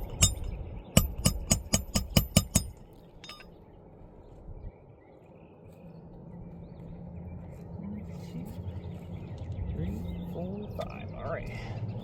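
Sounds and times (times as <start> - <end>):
hammer striking nail: 0.0 - 2.8.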